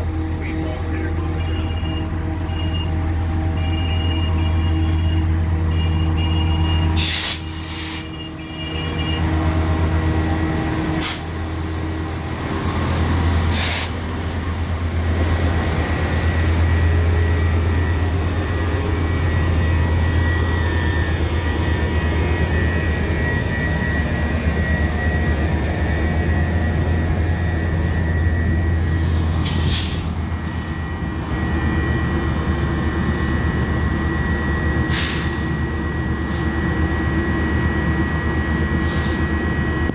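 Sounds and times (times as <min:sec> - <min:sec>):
train rumble and hum: 0:00.0 - 0:39.9
short sharp hisses: 0:07.0 - 0:08.1.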